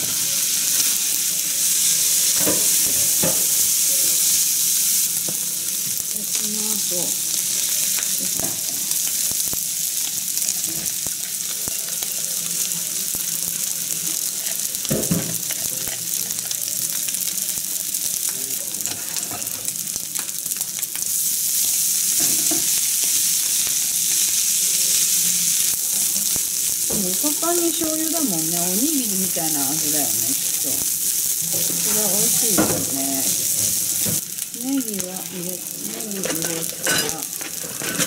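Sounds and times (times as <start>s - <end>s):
meat and rice sizzling in a pan: 0.0s - 38.0s.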